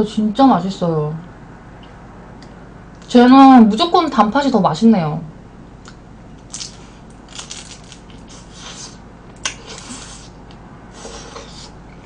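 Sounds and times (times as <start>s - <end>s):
crunchy chewing and biting: 5.8s - 11.8s.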